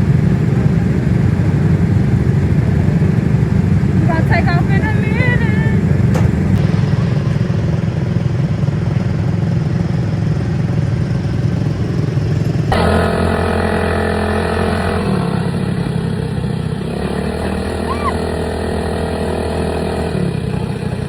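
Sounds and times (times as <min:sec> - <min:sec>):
buggy engines running: 0:00.0 - 0:21.0.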